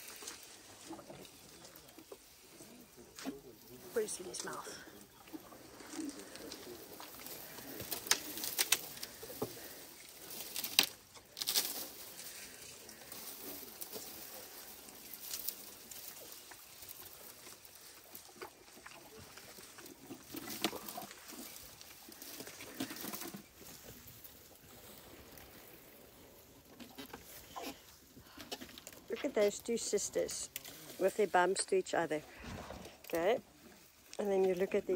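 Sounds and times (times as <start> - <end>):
elephant chewing: 0.0 - 34.9
rustling: 0.0 - 34.9
wood cracking and snapping: 5.9 - 9.8, 10.4 - 12.0.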